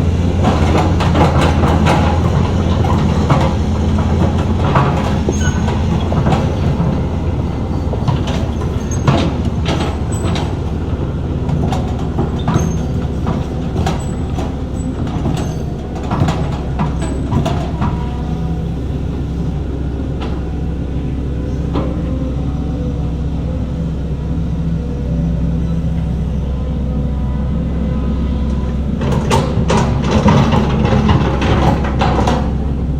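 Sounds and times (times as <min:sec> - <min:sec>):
diesel machinery engine drone: 0:00.0 - 0:32.9
metallic clanks and knocks: 0:00.4 - 0:18.3, 0:29.0 - 0:32.6.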